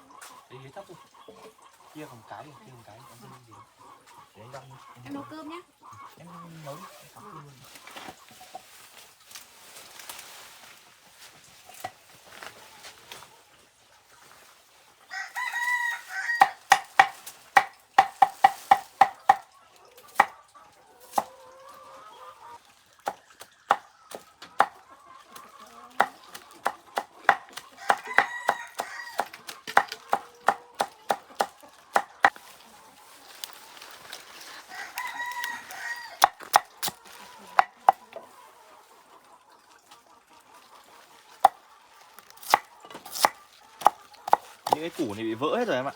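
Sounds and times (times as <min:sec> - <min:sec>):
rooster crowing: 0:15.1 - 0:16.6, 0:27.8 - 0:29.3, 0:34.6 - 0:36.4
knife chopping on cutting board: 0:16.4 - 0:19.4, 0:42.4 - 0:44.8.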